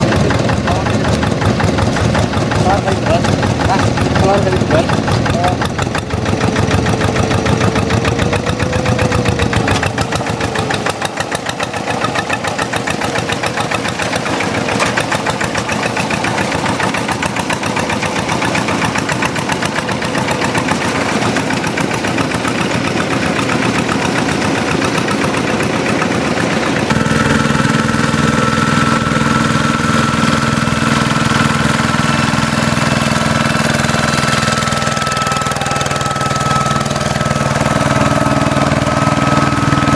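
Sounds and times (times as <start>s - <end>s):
diesel engine knocking: 0.0s - 39.9s
high tone: 33.6s - 39.9s.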